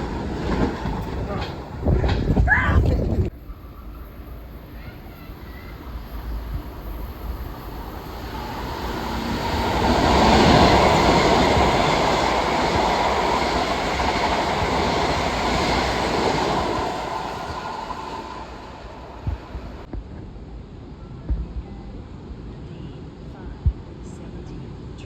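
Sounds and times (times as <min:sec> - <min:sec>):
train wheels on rails: 0:00.0 - 0:02.5, 0:03.4 - 0:20.3.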